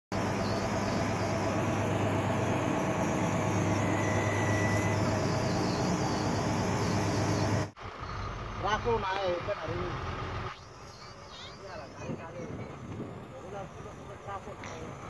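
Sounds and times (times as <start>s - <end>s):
road noise: 0.1s - 15.0s
vehicle engine hum: 0.1s - 15.0s.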